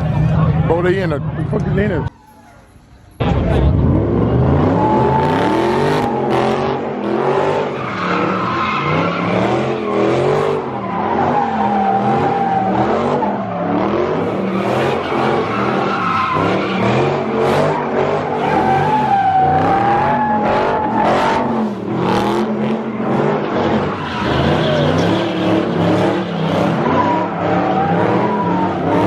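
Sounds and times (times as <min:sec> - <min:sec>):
car engine revving: 0:03.2 - 0:29.0
tyres squealing: 0:07.3 - 0:29.0.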